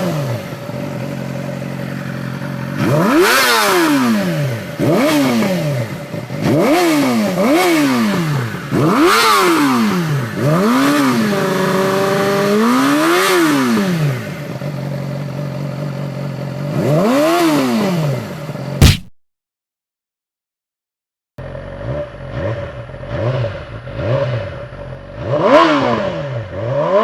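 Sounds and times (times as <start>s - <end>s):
motorcycle engine revving: 0.0s - 19.0s, 21.4s - 27.0s.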